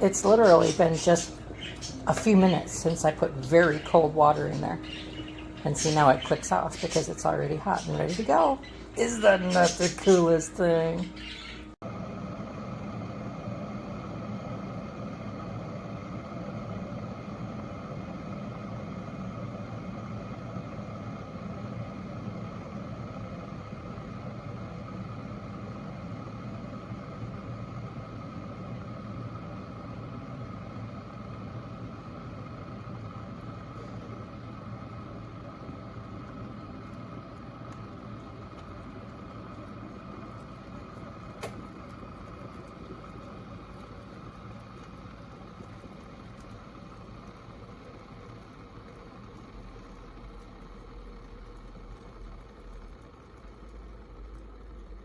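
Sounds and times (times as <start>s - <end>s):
water bubbling in kettle: 0.0s - 55.0s
kettle click: 41.4s - 41.7s.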